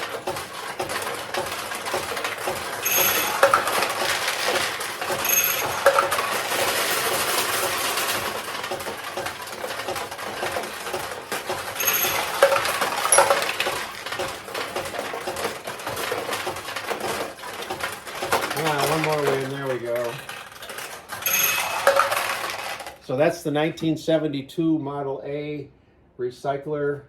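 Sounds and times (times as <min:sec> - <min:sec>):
steel balls clattering in pachinko machine: 0:00.0 - 0:23.0
bright metallic rings: 0:02.8 - 0:03.9, 0:05.2 - 0:06.2, 0:21.2 - 0:22.4.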